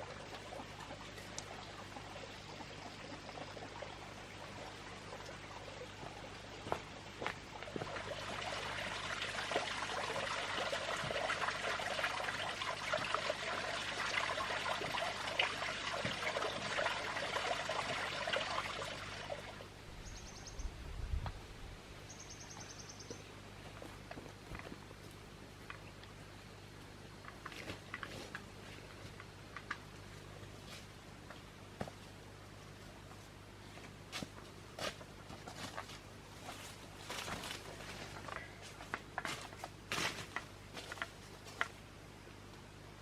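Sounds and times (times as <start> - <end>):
faint water trickle: 0.0 - 21.3
water pouring: 7.5 - 19.6.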